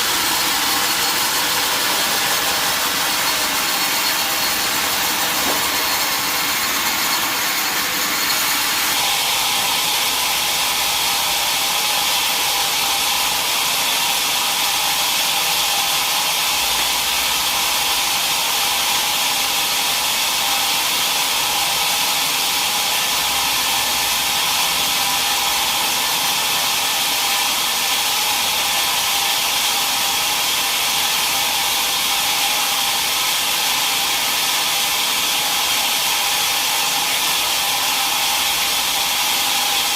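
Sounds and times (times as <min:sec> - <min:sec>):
sawmill saw whirring: 0:00.0 - 0:39.9.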